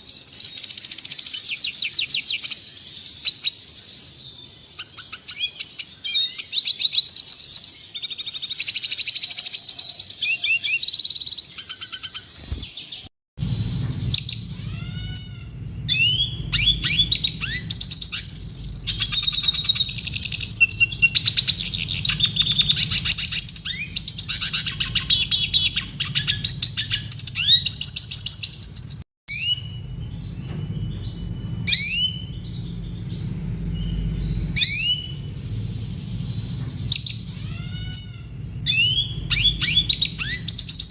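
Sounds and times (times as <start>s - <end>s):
bird twittering song: 0.0s - 40.9s
low hum: 13.4s - 40.9s.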